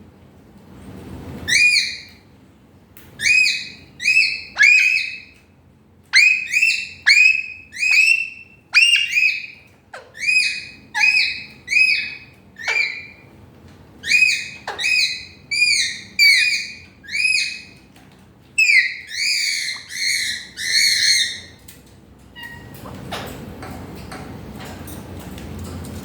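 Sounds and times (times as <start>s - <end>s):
parrot whistling calls: 1.5s - 2.2s, 3.2s - 5.4s, 6.2s - 13.2s, 14.0s - 17.8s, 18.6s - 21.6s.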